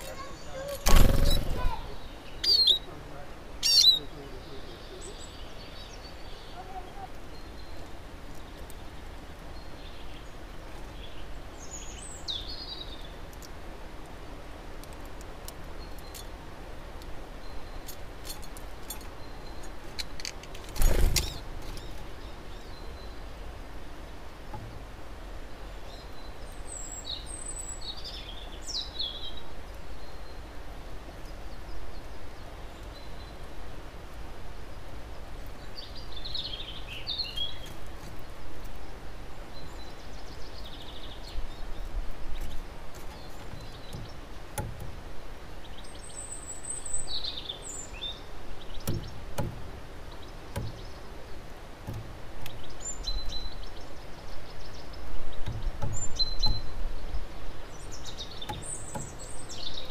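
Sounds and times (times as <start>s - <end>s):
high bird chirps: 0.0s - 2.9s, 3.6s - 7.8s, 55.3s - 57.1s
low background noise: 0.0s - 59.9s.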